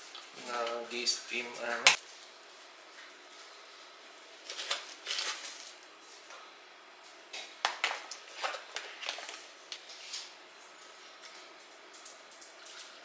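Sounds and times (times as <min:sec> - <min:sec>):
rustling and scraping of objects: 0:00.0 - 0:13.0.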